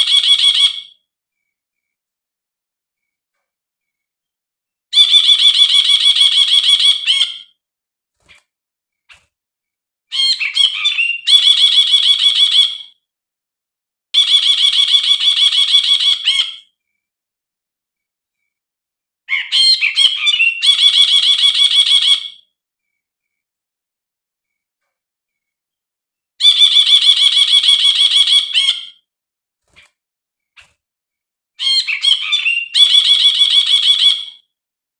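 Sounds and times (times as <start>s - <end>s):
bird chattering song: 4.9s - 7.5s, 10.1s - 12.9s, 14.2s - 16.7s, 19.3s - 22.4s, 26.4s - 29.0s, 31.6s - 34.4s.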